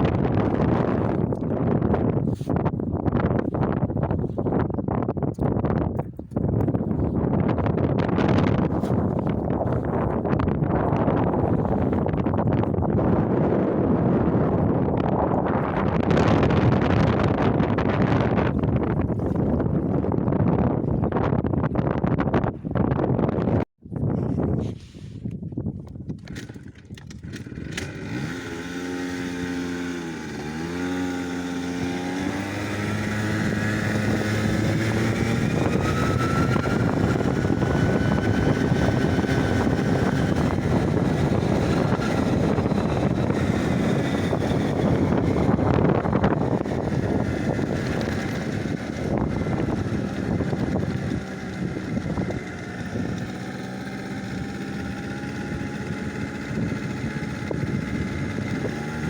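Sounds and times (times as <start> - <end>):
driving and wind noise: 0.0 - 59.0
vehicle engine running: 27.2 - 59.0.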